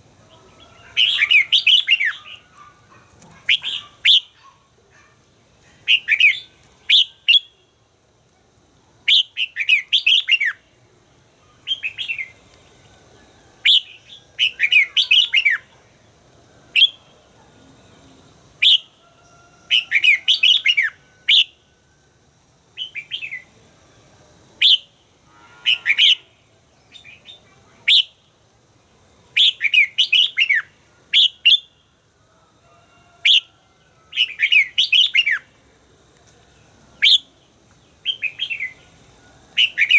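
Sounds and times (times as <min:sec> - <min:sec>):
bird singing whistled notes: 0:00.3 - 0:02.5, 0:03.5 - 0:04.4, 0:05.8 - 0:07.7, 0:09.1 - 0:10.7, 0:11.5 - 0:12.9, 0:13.6 - 0:15.7, 0:16.7 - 0:17.1, 0:18.6 - 0:19.0, 0:19.7 - 0:21.6, 0:22.8 - 0:23.5, 0:24.6 - 0:25.0, 0:25.6 - 0:28.2, 0:29.4 - 0:31.8, 0:34.1 - 0:35.5, 0:37.0 - 0:39.9.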